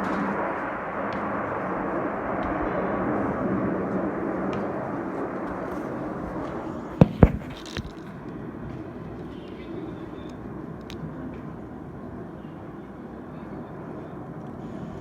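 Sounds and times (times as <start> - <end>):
distant jet noise: 0.0 - 15.0
sharp loud knocks: 7.0 - 8.0.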